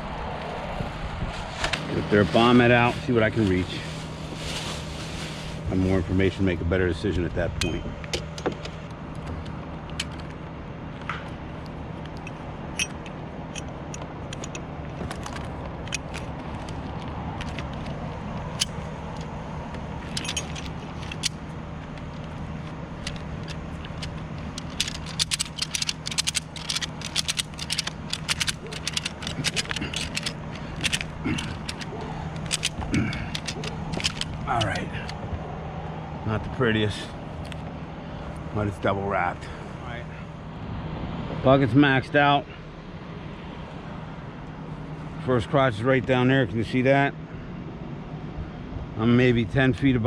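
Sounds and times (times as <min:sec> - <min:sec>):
truck engine running: 0:00.0 - 0:46.4
metallic clicks and rattles: 0:07.6 - 0:10.4, 0:12.0 - 0:35.2.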